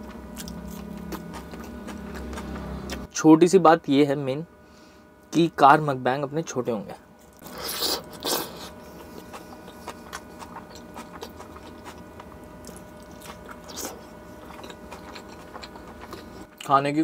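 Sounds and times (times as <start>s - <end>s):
man biting and chewing food: 0.0s - 3.1s, 7.2s - 16.7s.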